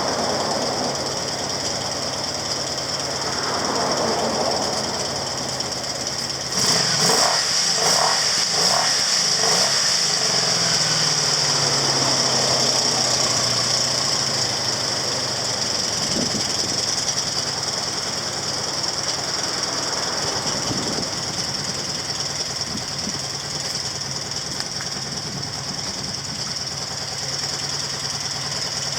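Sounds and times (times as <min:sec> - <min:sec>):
motorcycle engine revving and idling: 0:00.0 - 0:28.9.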